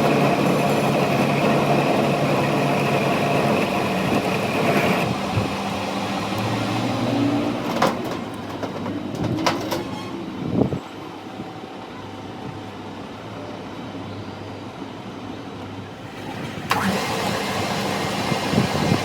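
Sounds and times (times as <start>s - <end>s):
machine whining: 0.0s - 8.5s, 16.0s - 19.0s.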